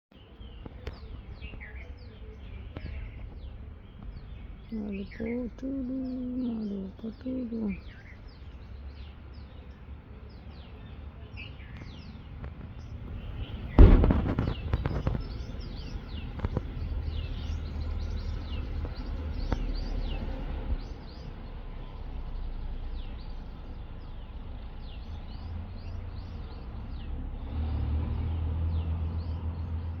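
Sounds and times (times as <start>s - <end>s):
small birds chirping: 0.1s - 30.0s
low rumble: 12.2s - 27.5s
loud crackling bang: 12.5s - 19.0s.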